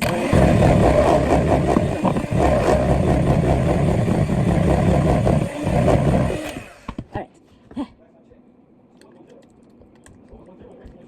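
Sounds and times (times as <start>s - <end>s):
electric mixer beating batter: 0.0s - 7.0s.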